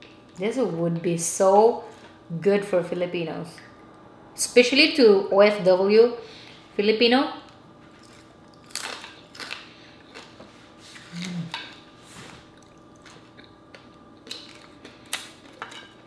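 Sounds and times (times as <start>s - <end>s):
crunchy chewing: 8.0s - 16.0s.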